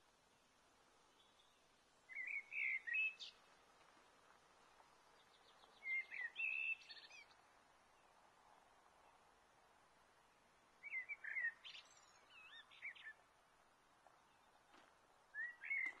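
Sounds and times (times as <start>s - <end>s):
faint outdoor hiss: 0.0s - 16.0s
songbird warbling: 2.1s - 3.4s, 5.6s - 7.4s, 10.8s - 13.2s, 15.3s - 16.0s.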